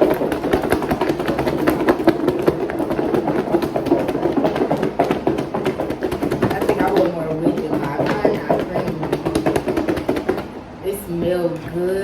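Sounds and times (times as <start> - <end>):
food rattling in shaken container: 0.0 - 10.6.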